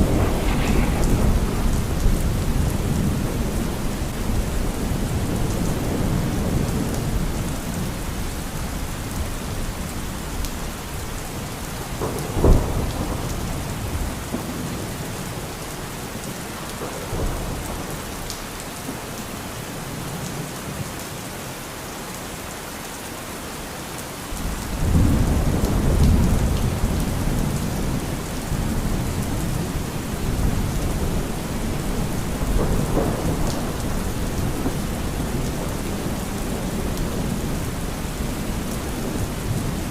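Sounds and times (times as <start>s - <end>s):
sharp thunderclap: 0.0s - 6.6s
low rumble of thunder: 0.0s - 15.6s, 24.4s - 39.9s
steady rain: 0.0s - 39.9s.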